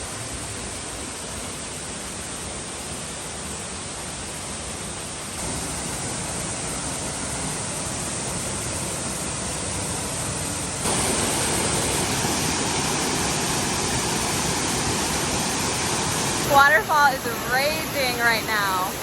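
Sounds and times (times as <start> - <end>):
waterfall rushing: 4.0 - 19.0.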